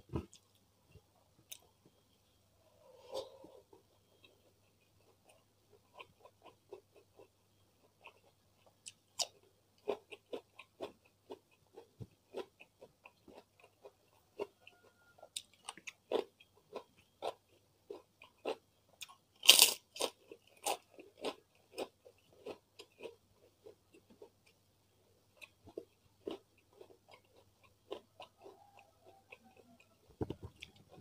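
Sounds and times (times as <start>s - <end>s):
crunchy chewing: 2.8s - 24.6s, 25.2s - 31.0s
loud cracker crunch: 19.4s - 23.0s.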